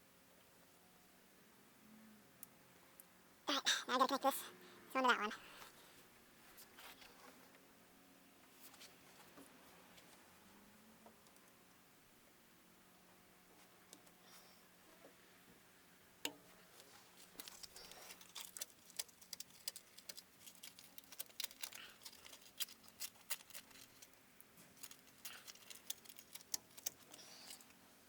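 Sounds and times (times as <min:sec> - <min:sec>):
small tools clicking and tapping: 0:17.3 - 0:24.2, 0:24.8 - 0:27.7.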